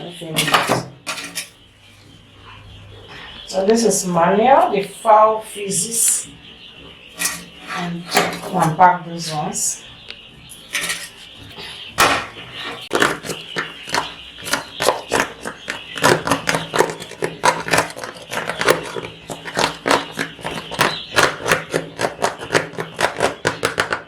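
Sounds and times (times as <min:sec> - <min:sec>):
chicks cheeping: 0:00.0 - 0:24.0
litter scraping and rustling: 0:00.3 - 0:01.6, 0:06.8 - 0:09.6, 0:10.4 - 0:23.8.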